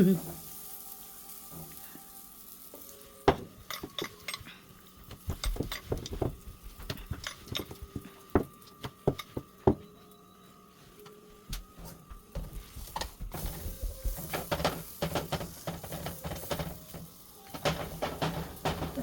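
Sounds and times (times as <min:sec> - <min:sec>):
metal utensils clinking on dishes: 0:02.8 - 0:09.4, 0:13.7 - 0:19.0.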